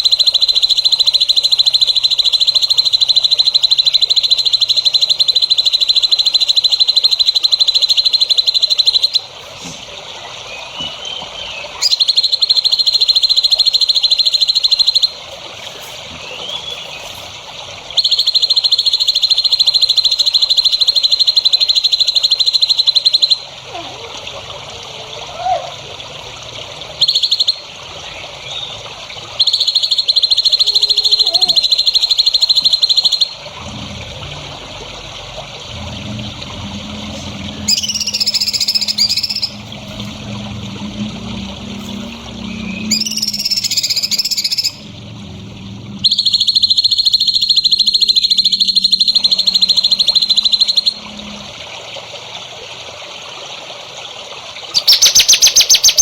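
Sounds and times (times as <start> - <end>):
soft bird chirps: 10.4 - 23.4, 27.0 - 28.8, 29.4 - 33.4, 37.2 - 40.2, 41.8 - 44.8, 46.0 - 51.0, 54.8 - 56.0
rapid high-pitched buzzing trill: 35.6 - 51.7.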